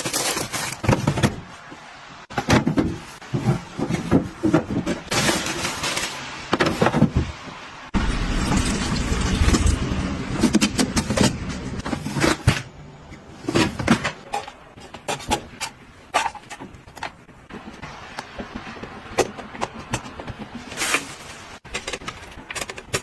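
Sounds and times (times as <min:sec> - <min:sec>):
objects clicking and knocking: 0:13.5 - 0:23.0.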